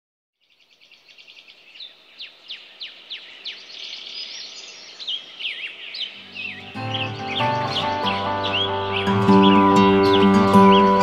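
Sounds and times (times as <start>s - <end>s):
birds chirping: 0.4s - 11.0s
music: 6.2s - 11.0s.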